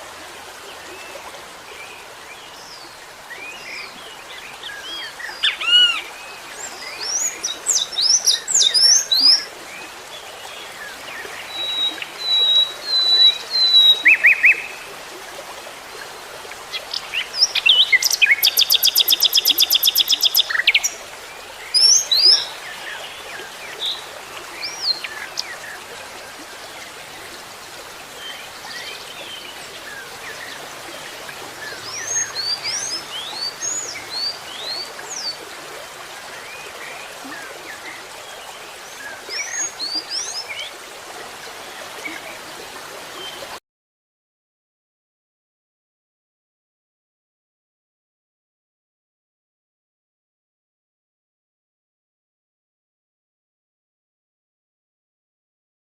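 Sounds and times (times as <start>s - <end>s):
small birds chirping: 16.7s - 21.0s.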